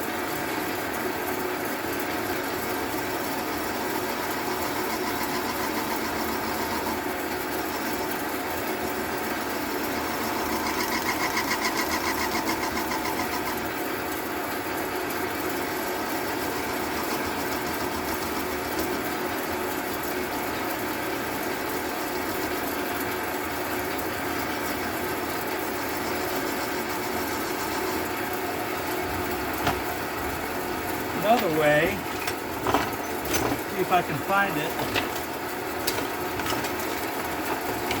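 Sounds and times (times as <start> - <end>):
lathe motor running: 2.7 - 14.0, 15.5 - 19.5, 24.4 - 38.0.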